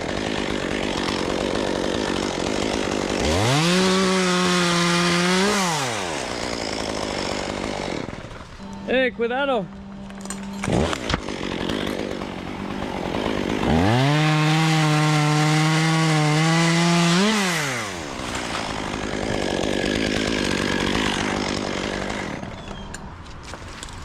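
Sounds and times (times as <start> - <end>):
chainsaw cutting wood: 0.0 - 9.0, 9.8 - 24.0.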